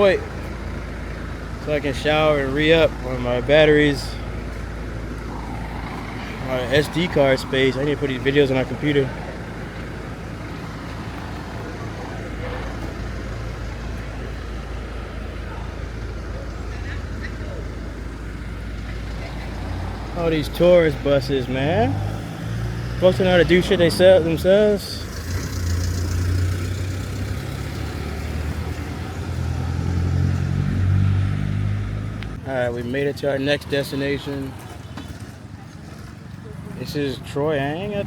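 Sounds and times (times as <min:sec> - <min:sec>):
moped engine humming: 0:00.0 - 0:21.9
wind and road noise: 0:00.0 - 0:38.0.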